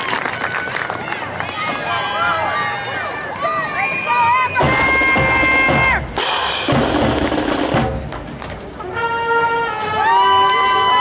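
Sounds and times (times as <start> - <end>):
marching band playing: 4.5 - 11.0
drum strokes: 4.6 - 10.0
cymbal crash: 6.2 - 7.9.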